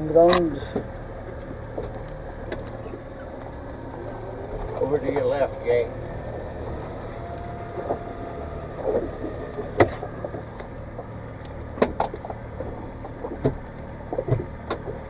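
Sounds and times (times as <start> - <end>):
boat motor running: 0.0 - 15.0
sharp knocks and clicks: 8.8 - 15.0.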